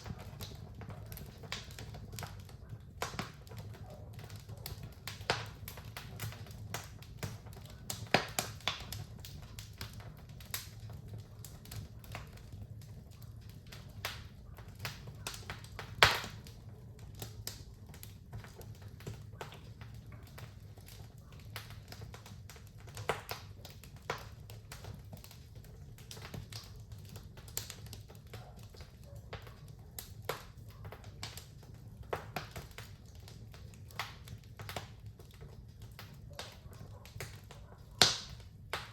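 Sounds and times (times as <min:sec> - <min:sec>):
fire crackling and popping: 0:00.0 - 0:38.9.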